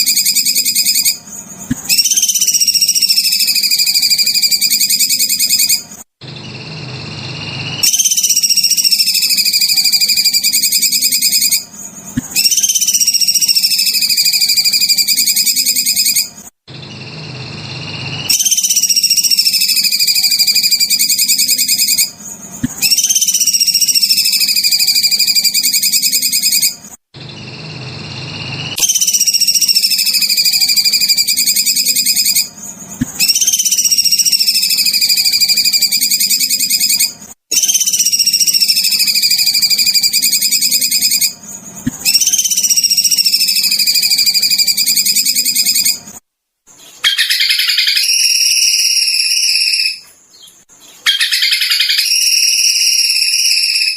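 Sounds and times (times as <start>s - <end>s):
songbird rapid trilling call: 51.1s - 53.8s.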